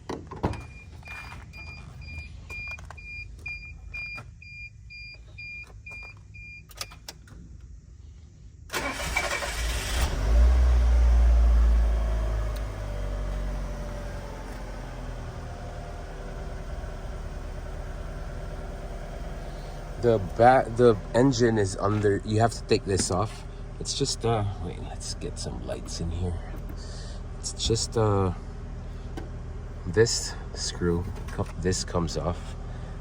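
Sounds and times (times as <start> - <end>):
dashboard warning chime beeping: 0.5 - 7.0
starter cranking engine: 8.7 - 10.3
car engine idling: 8.7 - 33.0.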